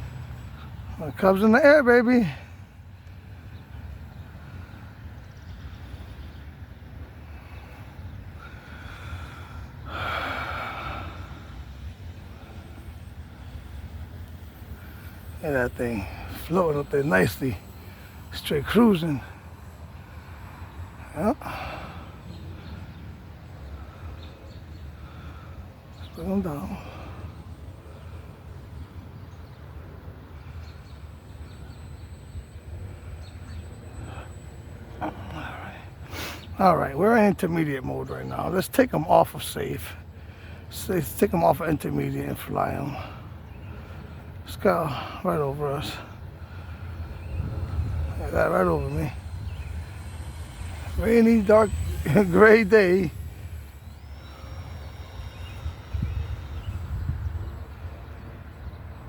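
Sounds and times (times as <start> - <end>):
faint high whine: 0.0 - 59.0
faint outdoor ambience: 0.0 - 59.0
faint chirps: 7.3 - 37.0, 39.1 - 59.0
breathy rush near microphone: 42.2 - 59.0
wind rumble on microphone: 46.3 - 59.0
model plane motor whine: 46.4 - 58.5.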